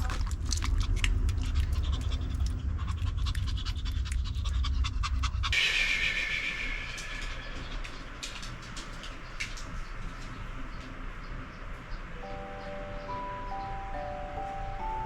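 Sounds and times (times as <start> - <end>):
dog panting rapidly: 0.0 - 5.6
low rumble: 0.0 - 11.8.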